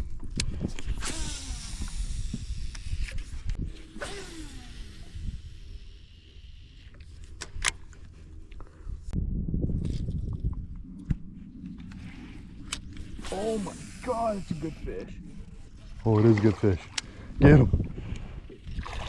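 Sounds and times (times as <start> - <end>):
fishing reel spool whirring: 0.7 - 9.1, 11.5 - 17.1.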